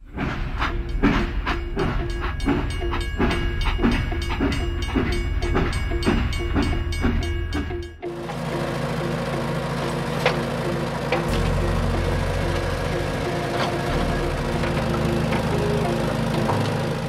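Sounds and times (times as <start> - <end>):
low motor hum: 0.0 - 17.0
toy train clicking chug: 0.2 - 17.0.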